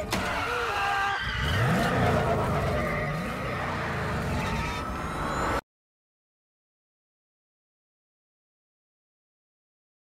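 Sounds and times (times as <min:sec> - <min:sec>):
road and tyre noise: 0:00.0 - 0:05.6
small car engine revving: 0:01.3 - 0:04.9.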